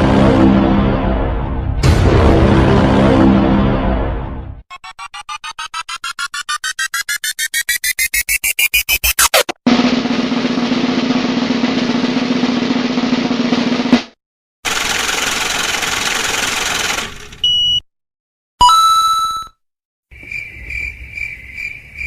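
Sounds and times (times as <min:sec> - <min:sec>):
rising drum roll pulses: 0:04.7 - 0:14.2.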